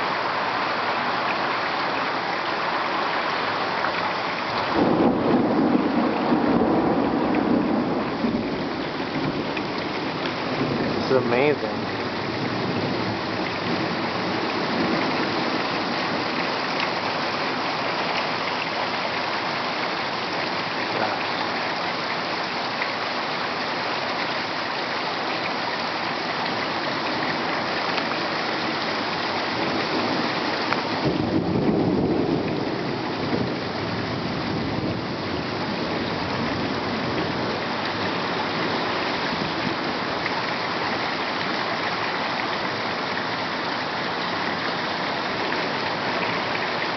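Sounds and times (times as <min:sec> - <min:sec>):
heavy rain pouring: 0:00.0 - 0:46.9
thunder rumbling: 0:04.6 - 0:16.4, 0:31.0 - 0:37.6.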